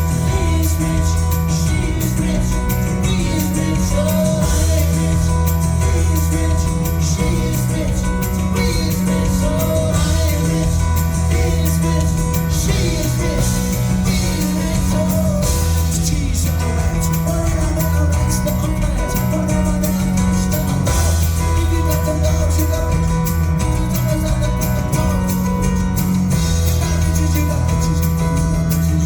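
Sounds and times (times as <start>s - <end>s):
live band playing: 0.0s - 29.0s
person singing: 0.0s - 29.0s.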